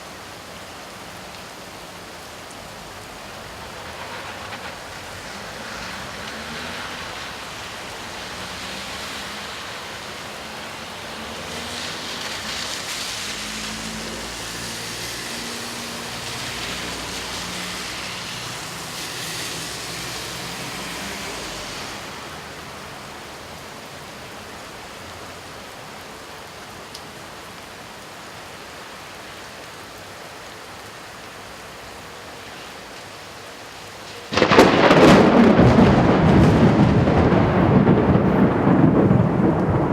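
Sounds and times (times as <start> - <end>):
car passing on wet road: 0.0 - 39.9
rain falling: 0.0 - 39.9
thunder crack: 34.3 - 39.9.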